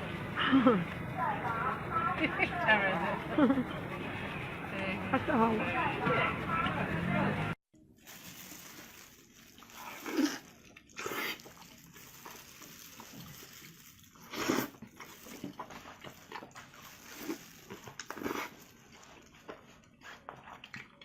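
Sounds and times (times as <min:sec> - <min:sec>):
wet chewing and slurping: 0:08.4 - 0:21.0.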